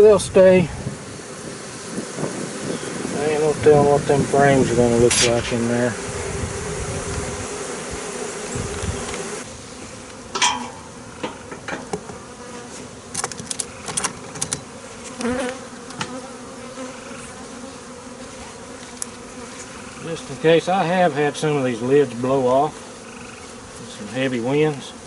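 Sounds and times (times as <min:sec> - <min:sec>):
bee swarm buzzing: 0:00.0 - 0:25.0
sharp clicks and knocks: 0:13.1 - 0:14.6.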